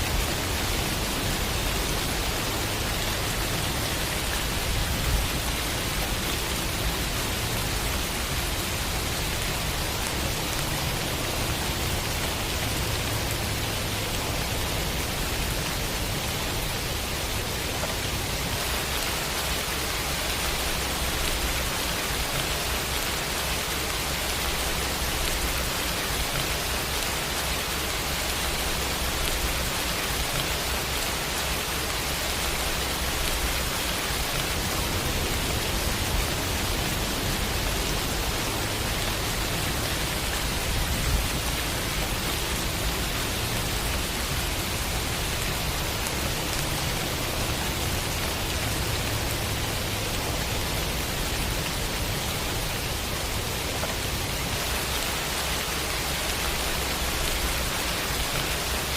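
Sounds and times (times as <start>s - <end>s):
heavy rain: 0.0s - 58.9s.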